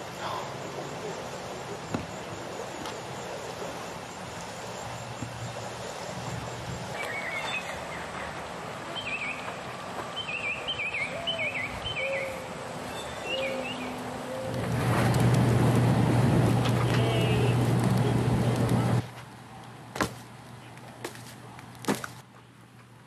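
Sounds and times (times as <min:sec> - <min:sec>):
outdoor background noise: 0:00.0 - 0:23.0
songbird whistling: 0:06.9 - 0:07.8, 0:09.0 - 0:09.5, 0:10.2 - 0:14.5.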